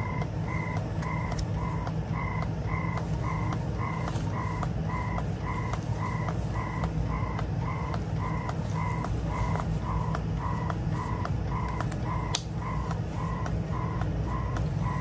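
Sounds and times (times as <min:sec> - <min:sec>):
breast pump motor hum: 0:00.0 - 0:15.0
sharp click: 0:11.2 - 0:13.0.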